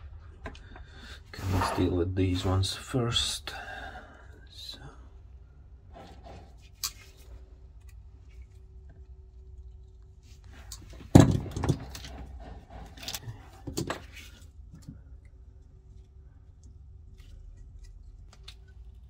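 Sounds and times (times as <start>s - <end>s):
low steady hum: 0.0s - 19.0s
small parts rattling and clattering: 9.6s - 15.0s.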